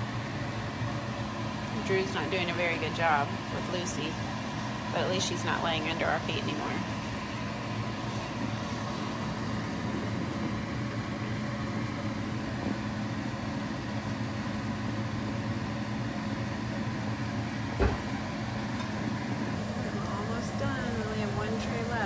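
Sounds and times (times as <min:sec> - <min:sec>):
low steady hum: 0:00.0 - 0:22.0
knock: 0:17.8 - 0:18.0.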